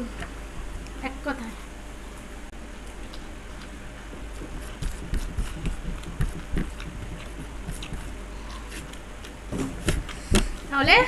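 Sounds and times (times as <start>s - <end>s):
chewing with wet mouth clicks: 2.9s - 10.6s.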